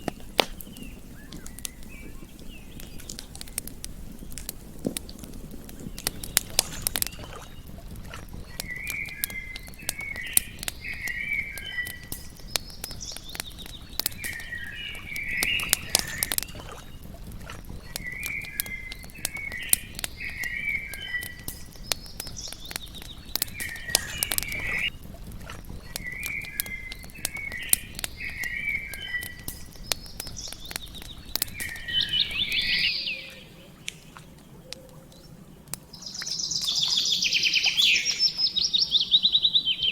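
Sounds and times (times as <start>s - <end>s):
campfire crackling and popping: 0.0s - 39.9s
animal chirping call: 36.0s - 39.9s.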